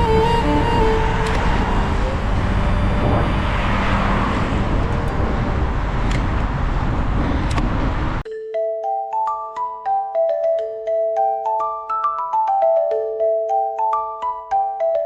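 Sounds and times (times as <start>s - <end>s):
passing motor vehicles: 0.0s - 8.2s.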